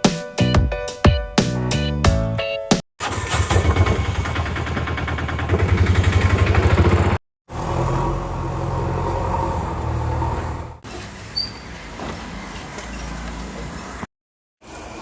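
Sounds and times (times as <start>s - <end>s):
heavy diesel engine chugging: 3.2s - 7.2s.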